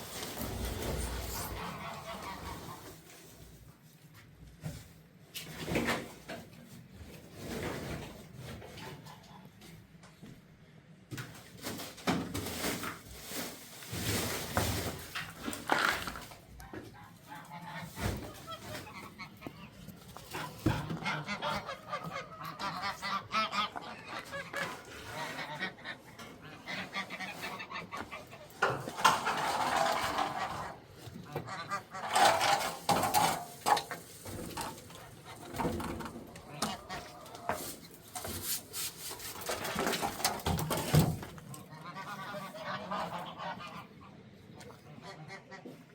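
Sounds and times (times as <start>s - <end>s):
farm birds calling: 0.0s - 3.4s, 14.9s - 45.9s.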